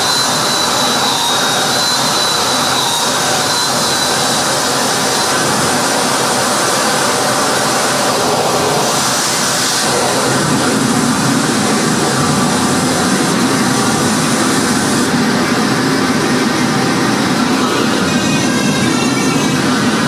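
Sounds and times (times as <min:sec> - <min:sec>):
harsh noise music static: 0:00.0 - 0:20.0.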